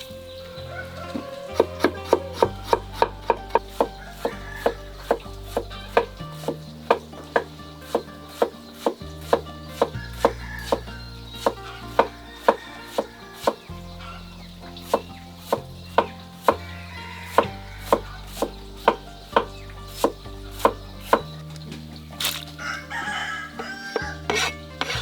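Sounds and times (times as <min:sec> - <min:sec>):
background music: 0:00.0 - 0:25.0
blade chopping on wooden board: 0:04.6 - 0:13.1, 0:24.0 - 0:25.0.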